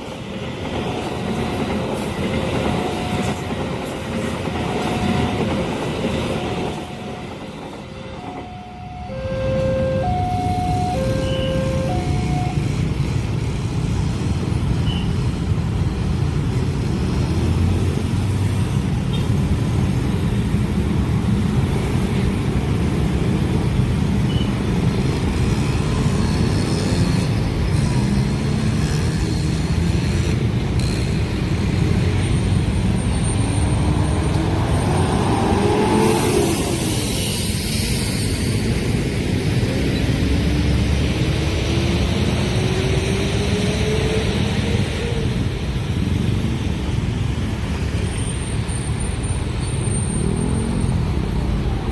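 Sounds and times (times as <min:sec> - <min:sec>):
road traffic engine rumble: 0:07.0 - 0:41.7, 0:42.3 - 0:51.9
vehicles accelerating away: 0:33.1 - 0:37.0.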